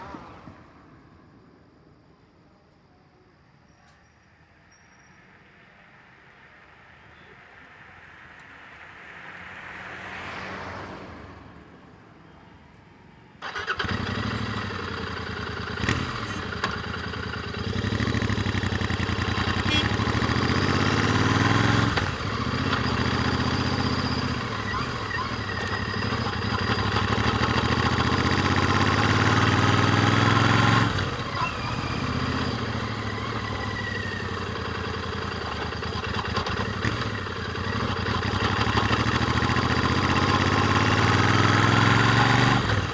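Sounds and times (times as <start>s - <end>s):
motorcycle engine accelerating: 13.4s - 42.9s.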